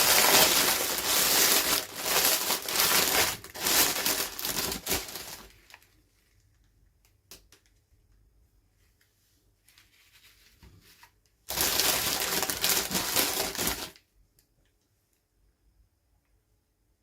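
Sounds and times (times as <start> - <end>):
packaging rustling and crinkling: 0.0 - 6.4, 10.1 - 14.0.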